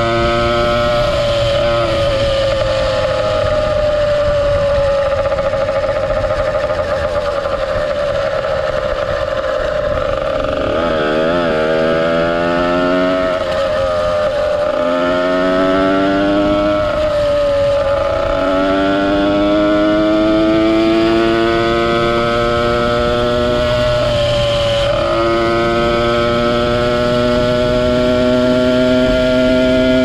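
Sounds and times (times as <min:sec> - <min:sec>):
two-stroke engine revving: 0:00.0 - 0:30.0.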